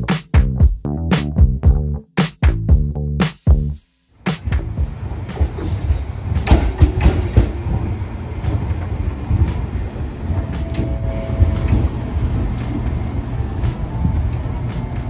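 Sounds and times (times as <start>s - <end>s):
electric train rumbling: 4.4s - 15.0s.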